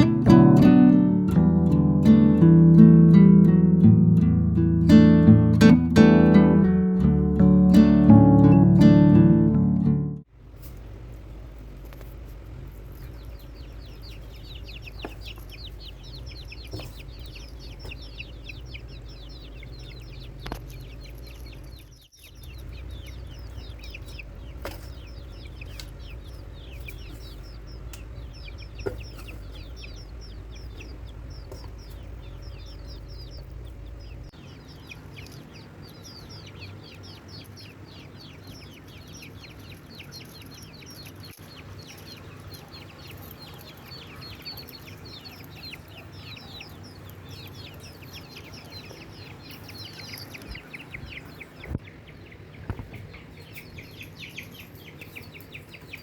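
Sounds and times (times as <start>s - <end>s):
birds chirping: 0.0s - 10.3s, 11.8s - 56.0s
low rumble: 22.4s - 34.3s.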